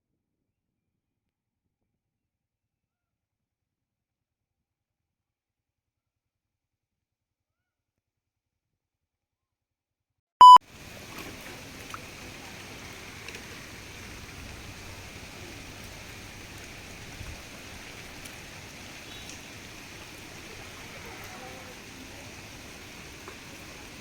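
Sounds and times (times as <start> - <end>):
water rushing: 10.6 - 24.0.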